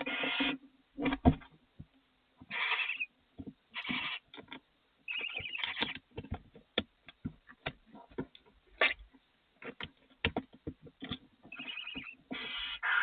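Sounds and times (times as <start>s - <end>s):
owl chick hissing call: 2.5s - 3.1s, 12.3s - 13.0s.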